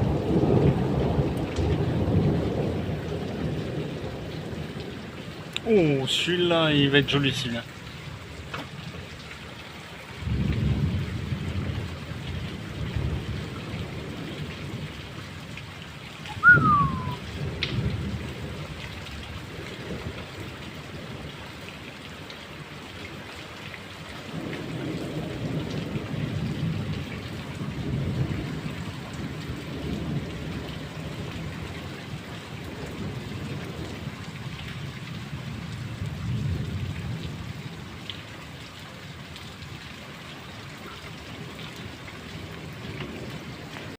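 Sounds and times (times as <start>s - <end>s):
thunder rumbling and cracking: 0.0s - 5.1s, 10.2s - 15.2s, 16.4s - 21.3s, 24.3s - 37.6s
steady rain: 0.0s - 43.9s.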